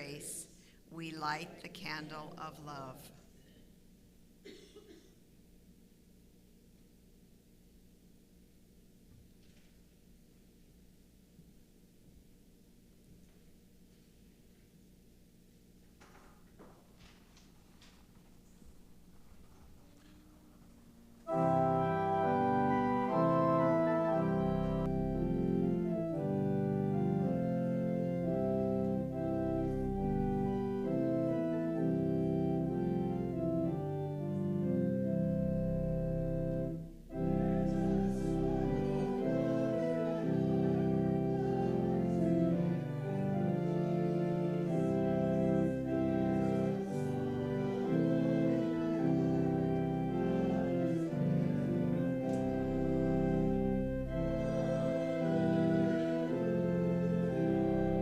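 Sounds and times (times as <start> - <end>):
church organ chords: 19.0 - 58.0.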